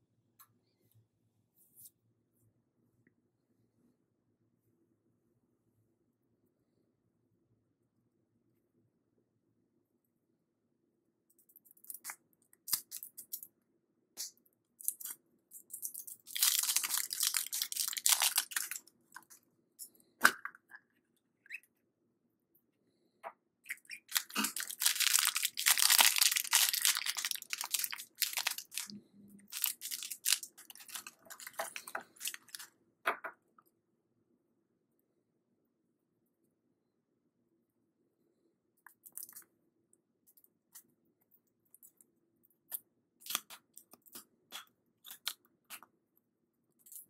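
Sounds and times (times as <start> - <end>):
packaging torn and crinkled: 15.9 - 18.8, 24.1 - 28.9, 29.5 - 32.7.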